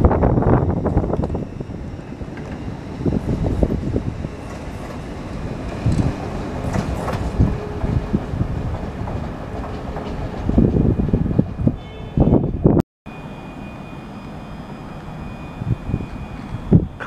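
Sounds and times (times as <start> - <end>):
train low rumble: 0.0 - 17.0
train wheels clattering on track: 2.2 - 11.2.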